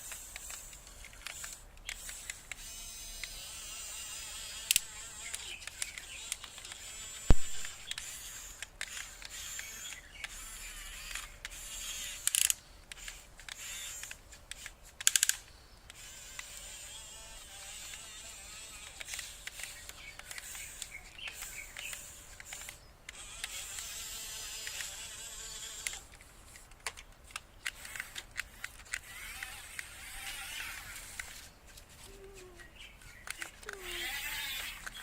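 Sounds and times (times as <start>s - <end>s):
small electric motors whining: 0.0s - 35.0s
sharp click: 4.7s - 8.1s.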